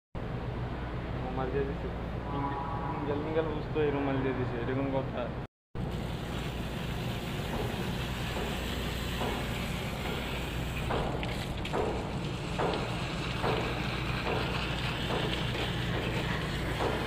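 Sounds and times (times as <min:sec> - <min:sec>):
pressure washer motor hum: 0:05.8 - 0:17.0
water jet hissing: 0:05.8 - 0:17.0.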